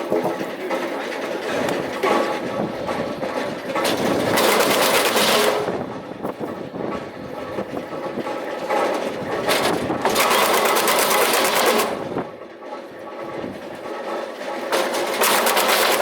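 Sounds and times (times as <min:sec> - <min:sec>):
wood chipper chipping wood: 0:00.0 - 0:12.8, 0:13.8 - 0:16.0.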